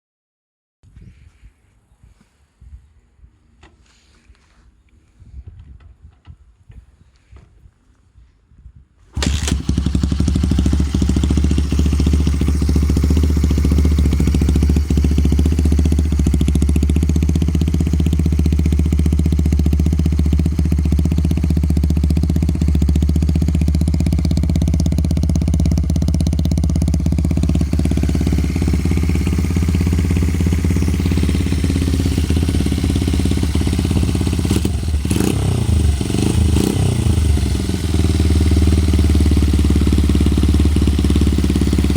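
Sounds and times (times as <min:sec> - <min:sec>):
motorcycle engine idling: 0:09.2 - 0:41.9.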